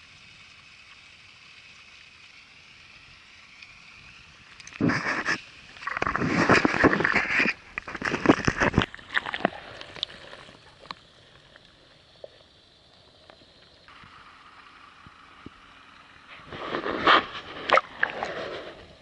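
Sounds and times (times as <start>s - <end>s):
water splashing against a kayak: 4.8s - 11.3s, 16.3s - 19.0s.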